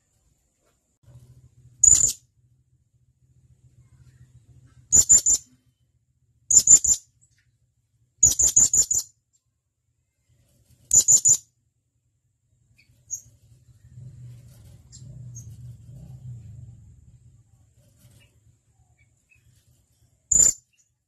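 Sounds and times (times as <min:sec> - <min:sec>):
parrot high-pitched calls: 0:04.9 - 0:05.5.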